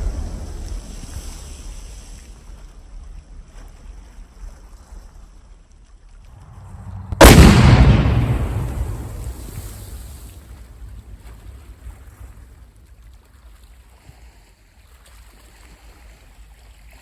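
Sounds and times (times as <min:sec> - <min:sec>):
low rumble of blast: 0:06.3 - 0:11.2
explosive blast: 0:06.4 - 0:10.3.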